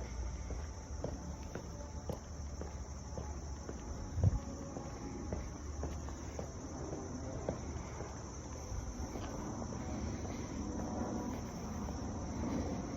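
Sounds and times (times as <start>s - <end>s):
insects chirping: 0.0s - 12.9s
low outdoor rumble: 0.0s - 12.9s.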